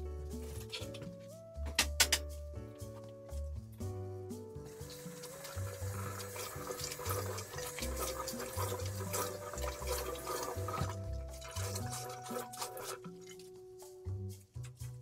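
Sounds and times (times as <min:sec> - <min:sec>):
background music: 0:00.0 - 0:15.0
tap water running into sink: 0:04.6 - 0:13.5.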